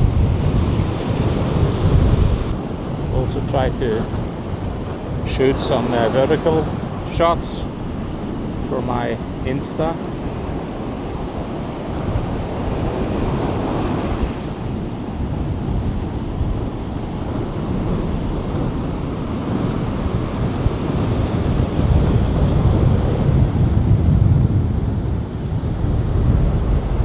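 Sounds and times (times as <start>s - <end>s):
ocean surf breaking: 0.0s - 27.0s
wind buffeting microphone: 0.0s - 27.0s.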